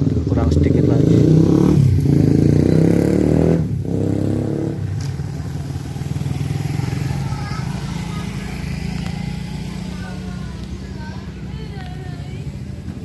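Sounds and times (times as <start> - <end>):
vehicle engine accelerating: 0.0 - 13.0.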